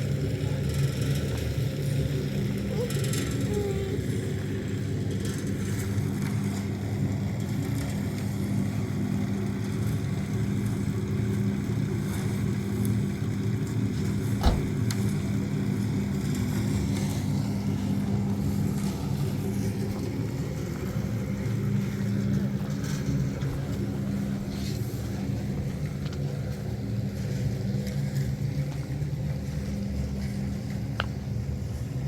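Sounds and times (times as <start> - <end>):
engine running: 0.0 - 32.0.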